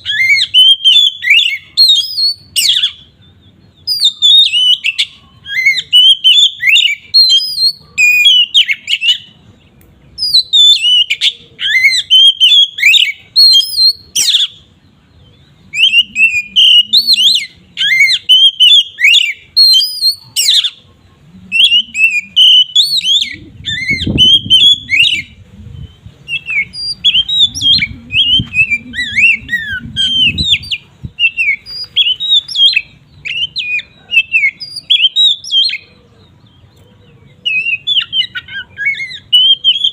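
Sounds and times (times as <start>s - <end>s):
magpie-robin singing: 0.0s - 39.9s
faint low rumble: 23.2s - 31.2s.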